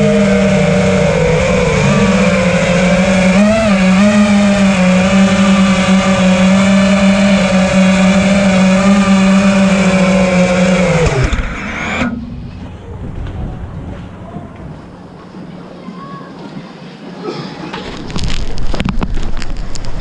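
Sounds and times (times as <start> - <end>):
quadcopter motors whining: 0.0 - 12.3.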